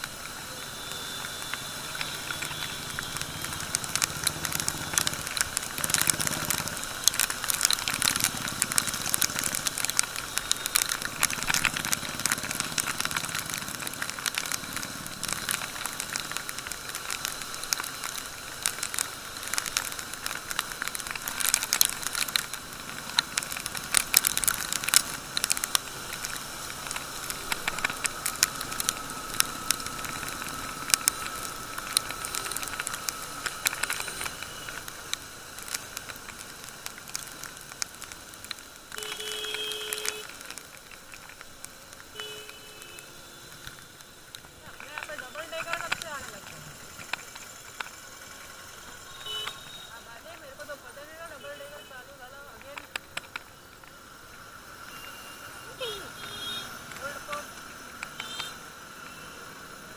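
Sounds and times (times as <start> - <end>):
rain spattering on camera: 0.0 - 59.9
tyres hissing on wet road: 0.0 - 59.9
faint motorcycle engine running: 0.1 - 36.4.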